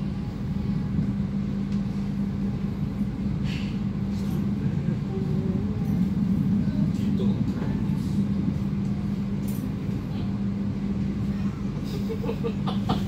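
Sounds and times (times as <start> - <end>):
constant hum: 0.0 - 13.0
train low rumble: 0.0 - 13.0.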